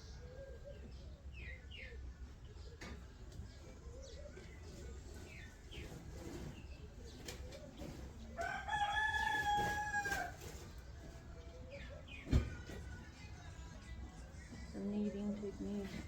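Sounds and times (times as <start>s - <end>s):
small birds chirping: 0.0s - 9.6s, 10.2s - 16.0s
rooster crowing: 8.4s - 10.4s.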